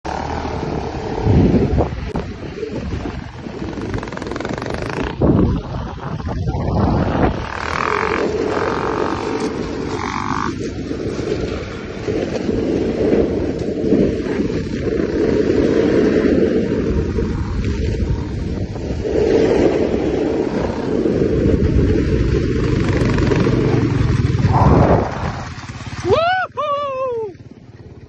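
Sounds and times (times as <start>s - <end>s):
dirt bike engine running: 0.0s - 26.2s, 27.3s - 28.0s
wind buffeting microphone: 0.1s - 28.0s.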